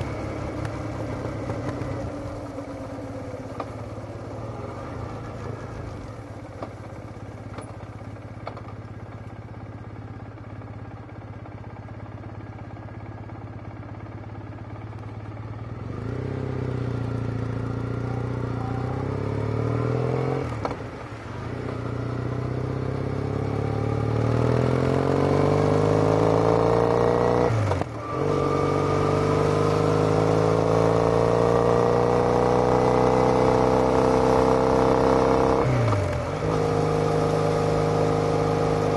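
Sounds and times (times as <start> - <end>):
motorcycle engine pulling away: 15.5 - 38.9.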